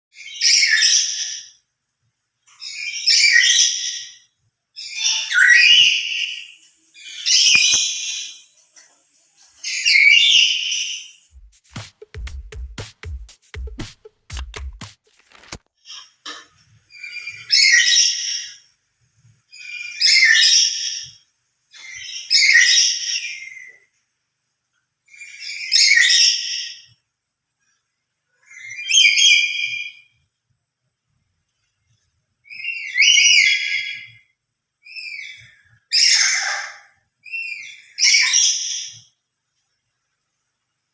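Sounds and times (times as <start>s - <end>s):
parrot shrill harsh calls: 4.8s - 8.4s, 16.9s - 18.6s, 25.2s - 26.8s, 32.5s - 34.1s, 34.9s - 39.0s.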